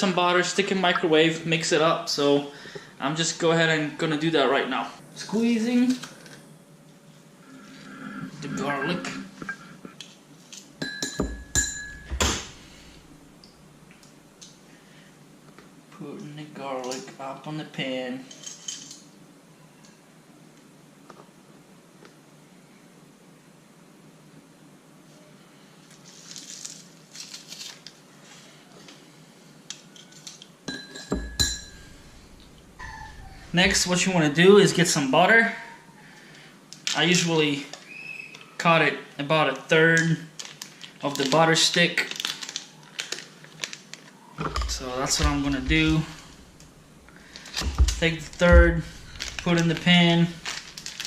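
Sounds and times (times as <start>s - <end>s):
utensil clinking against a dish: 10.8s - 12.1s, 30.7s - 32.1s.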